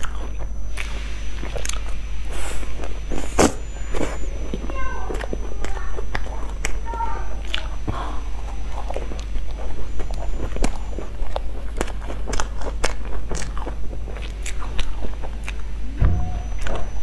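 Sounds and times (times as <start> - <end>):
person biting and chewing: 0.0 - 4.3, 8.5 - 15.7
low steady hum: 0.0 - 17.0.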